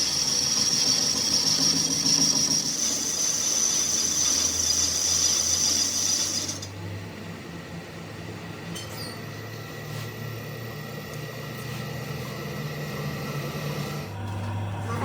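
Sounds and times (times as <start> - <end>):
machine motor humming and whining: 0.0 - 15.0.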